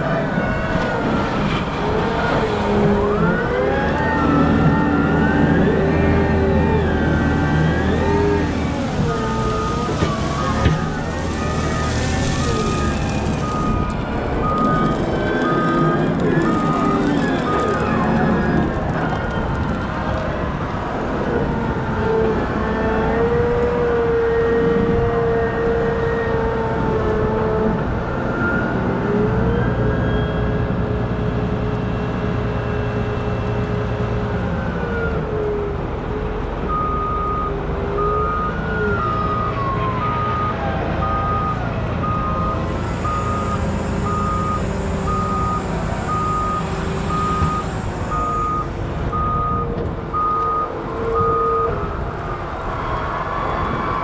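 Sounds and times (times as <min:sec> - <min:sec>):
diesel engine revving: 0:00.0 - 0:54.0
reversing alarm beeping: 0:00.3 - 0:18.8, 0:36.6 - 0:52.2.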